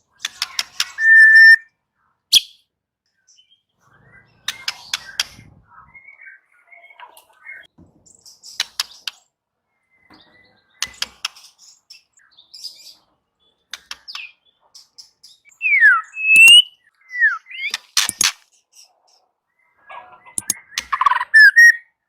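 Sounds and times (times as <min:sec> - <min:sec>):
bird clear whistles: 0:00.9 - 0:01.7, 0:15.6 - 0:18.2, 0:20.4 - 0:22.0
bird sharp ticks: 0:20.4 - 0:21.1.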